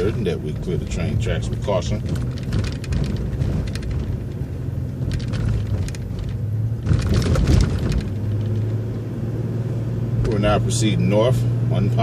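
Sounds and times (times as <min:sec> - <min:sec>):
rattling and clatter: 0:00.0 - 0:08.8
bus running: 0:00.0 - 0:12.0.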